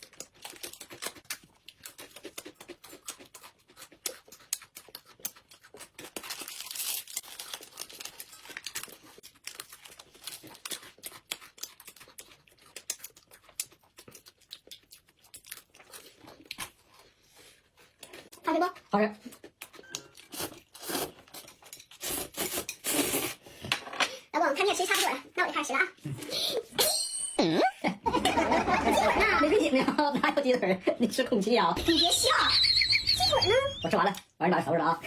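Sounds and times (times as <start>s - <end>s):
wet chewing sounds: 0.0s - 23.4s.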